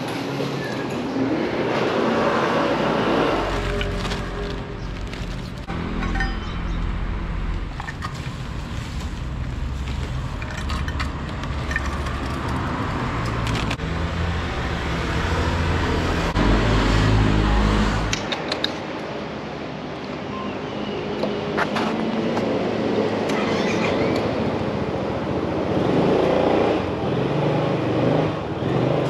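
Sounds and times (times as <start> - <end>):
traffic noise: 0.0 - 29.0.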